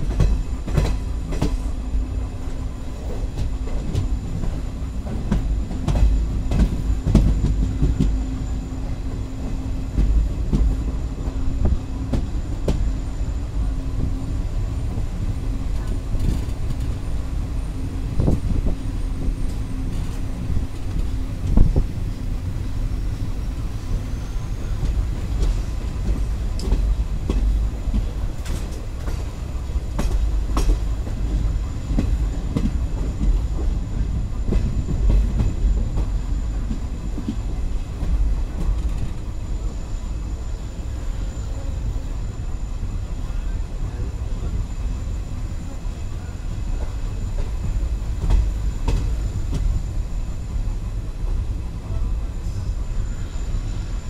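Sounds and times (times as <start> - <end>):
train wheels rumbling on rails: 0.0 - 54.0
sharp rail clicks: 24.8 - 29.3.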